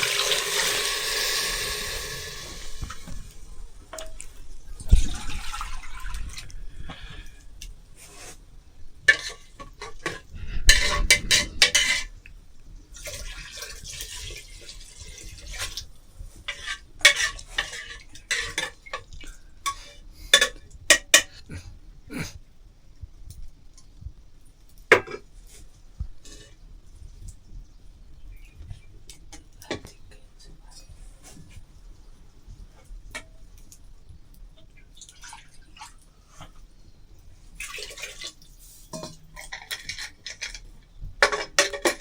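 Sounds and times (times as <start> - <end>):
kitchen utensils and pots clattering: 0.0 - 6.4, 9.0 - 12.2, 12.9 - 21.5, 37.6 - 42.0
pots scraping: 0.0 - 7.4, 9.0 - 12.3, 12.9 - 21.6, 37.6 - 42.0.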